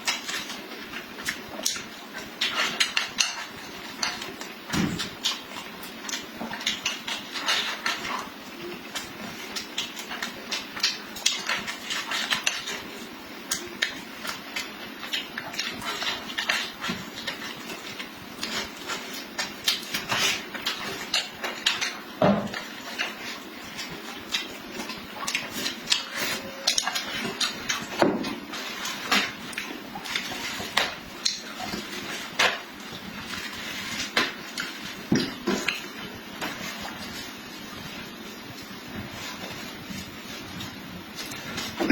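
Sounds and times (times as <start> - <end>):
chewing and lip-smacking: 5.1 - 36.0.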